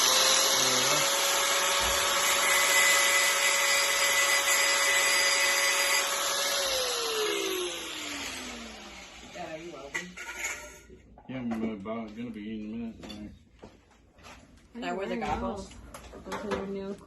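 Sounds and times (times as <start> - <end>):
power tool motor whining: 0.0 - 9.9.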